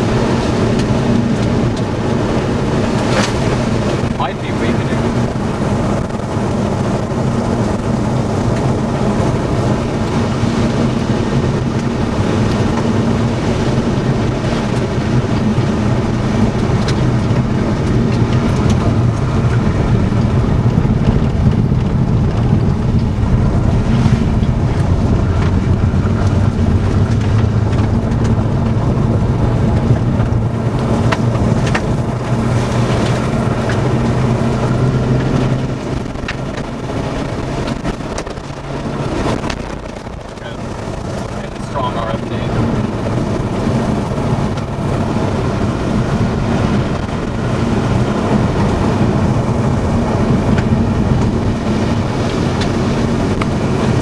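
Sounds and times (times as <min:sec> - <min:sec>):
wind rushing past: 0:00.0 - 0:41.6
car engine and road noise: 0:00.0 - 0:54.0.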